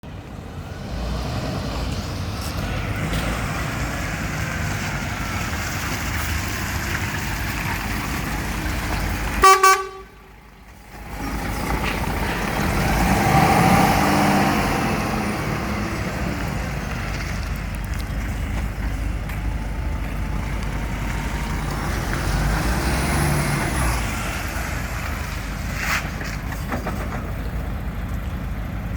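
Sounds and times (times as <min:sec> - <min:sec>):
diesel truck engine idling: 0:02.2 - 0:28.9
truck horn blast: 0:09.4 - 0:10.3.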